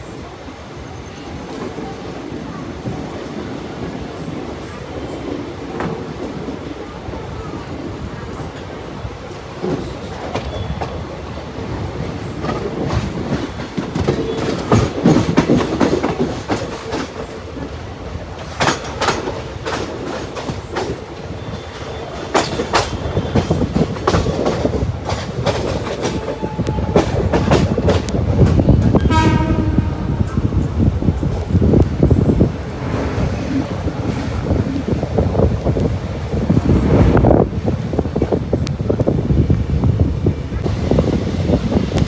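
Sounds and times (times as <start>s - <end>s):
train rumbling on track: 0.0s - 42.0s
wheels clacking over rail joints: 8.1s - 36.6s.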